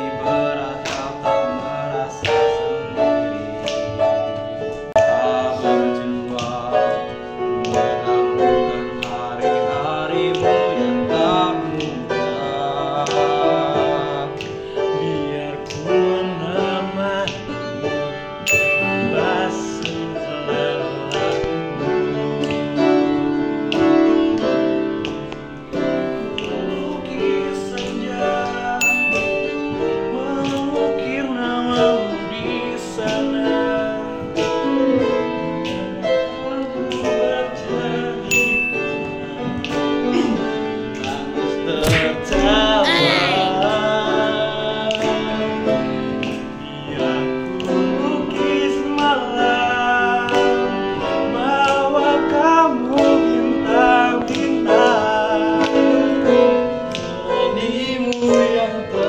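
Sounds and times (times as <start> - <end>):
male voices singing together: 0.0 - 3.1, 5.0 - 21.6, 26.2 - 59.0.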